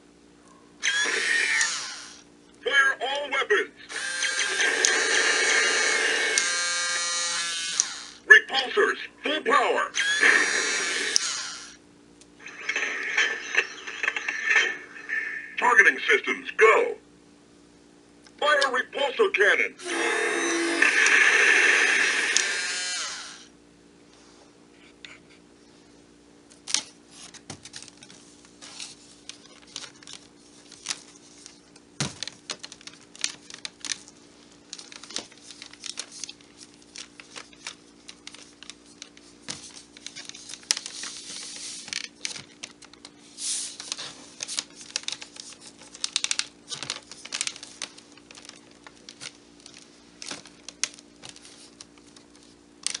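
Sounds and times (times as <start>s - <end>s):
hand handling clicks and crinkling: 26.5s - 53.0s.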